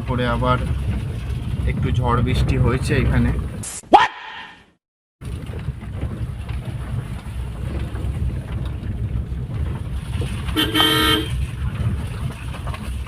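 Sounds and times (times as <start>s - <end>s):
car driving on wet street: 0.0s - 3.6s, 5.2s - 13.0s
vehicle horn: 10.5s - 11.4s.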